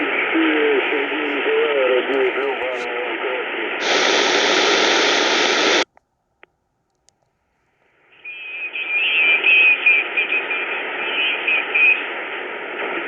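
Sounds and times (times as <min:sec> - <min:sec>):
shortwave radio hiss: 0:00.0 - 0:05.8, 0:08.1 - 0:13.0
faint clicks: 0:05.4 - 0:07.4.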